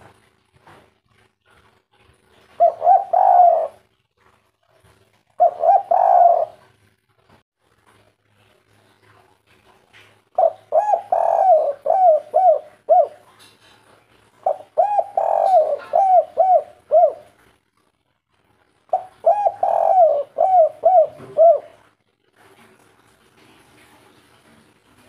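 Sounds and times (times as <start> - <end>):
dove cooing: 2.3 - 3.9, 5.4 - 6.8, 10.4 - 13.4, 14.4 - 17.4, 18.9 - 21.9.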